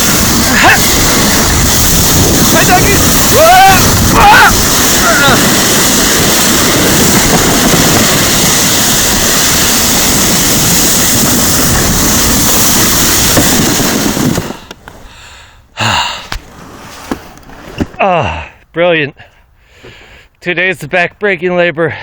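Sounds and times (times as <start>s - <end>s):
sled sliding over snow: 0.0s - 15.3s, 16.2s - 18.0s
wind buffeting microphone: 0.0s - 15.4s.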